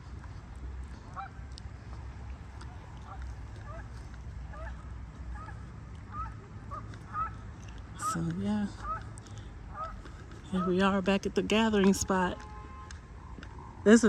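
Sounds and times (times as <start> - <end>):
low steady rumble: 0.0 - 14.0
geese honking: 2.6 - 12.9.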